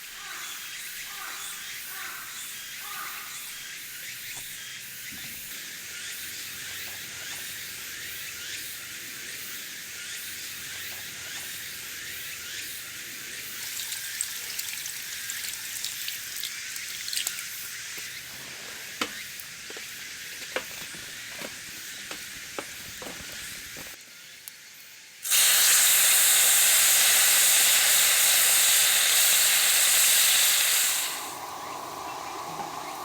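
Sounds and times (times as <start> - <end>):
crackly hiss with pops: 4.2 - 24.6
fat and meat sizzling loudly: 5.5 - 24.0, 25.2 - 33.0.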